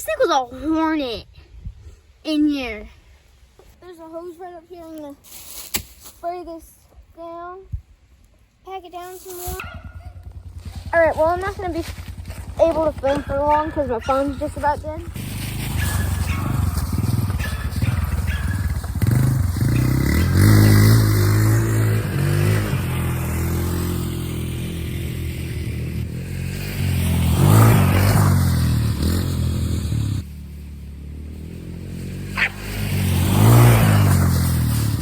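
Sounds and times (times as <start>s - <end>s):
off-road vehicle engine revving: 9.8s - 35.0s.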